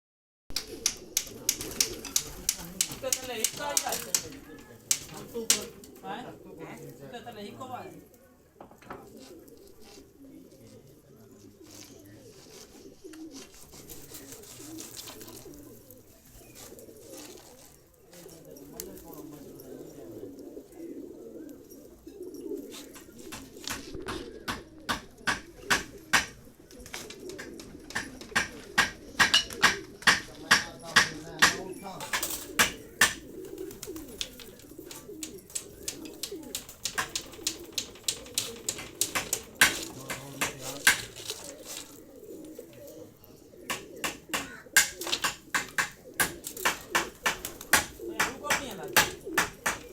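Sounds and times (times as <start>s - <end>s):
sharp clicks or taps: 0.5s - 5.8s, 34.2s - 41.5s
pigeons cooing: 0.5s - 49.9s
faint rustling and crackling: 0.7s - 29.2s, 29.8s - 49.9s.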